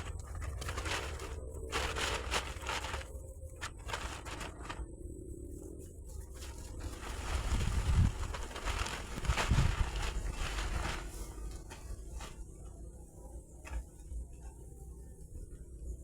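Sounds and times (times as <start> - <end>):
materials scraping and crinkling: 0.0 - 12.8
steady low rumble: 0.0 - 13.6.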